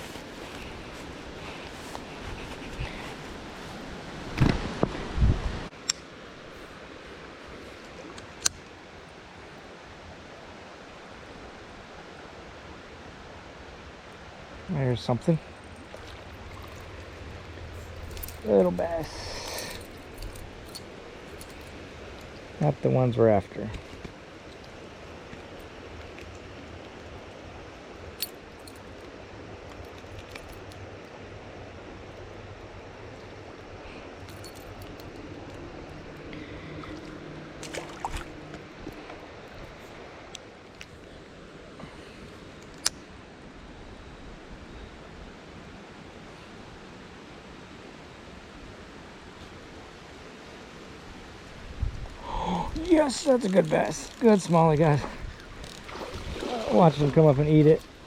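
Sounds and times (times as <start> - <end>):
river water rushing over rapids: 45.4 - 58.0
river water rushing over rocks: 52.2 - 58.0.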